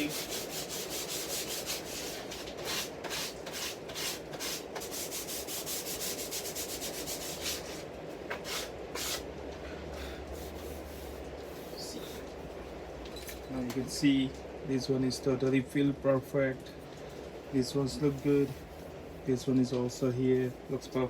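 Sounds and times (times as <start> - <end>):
sandpaper sanding wood: 0.0 - 9.2.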